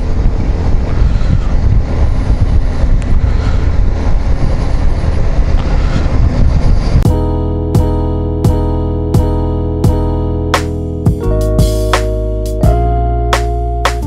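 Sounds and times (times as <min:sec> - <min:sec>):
wind buffeting microphone: 0:00.0 - 0:07.2
road noise: 0:00.0 - 0:14.0.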